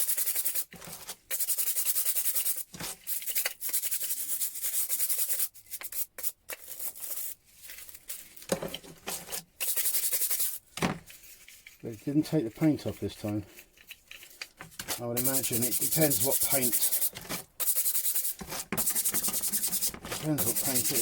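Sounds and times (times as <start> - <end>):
scrubbing metal wrench: 11.6 - 21.0.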